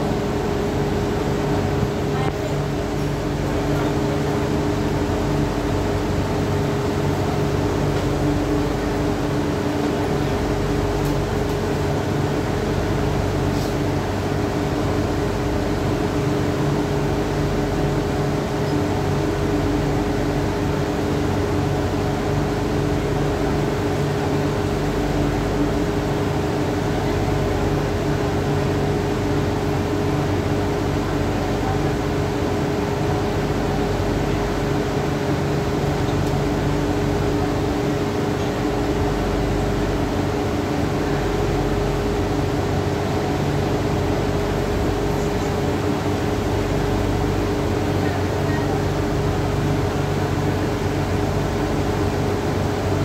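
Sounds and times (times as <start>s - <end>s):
constant-pitched hum: 0.0s - 53.0s
metro train wheels rumbling: 0.0s - 53.0s.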